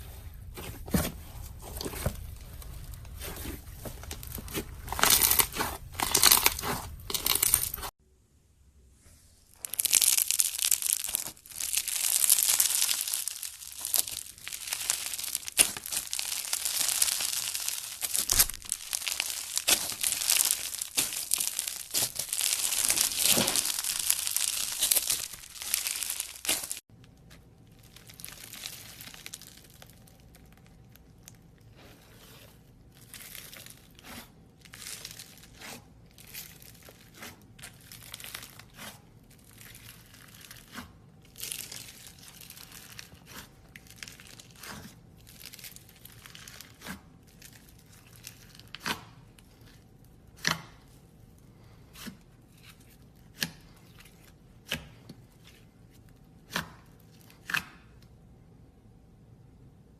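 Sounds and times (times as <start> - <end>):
slime squishing and crackling: 1.4 - 7.9, 9.6 - 58.0.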